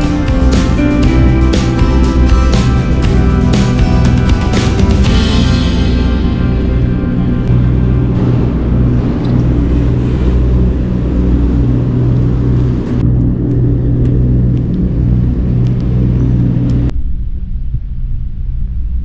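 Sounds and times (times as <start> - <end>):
motor engine humming: 0.0 - 16.9.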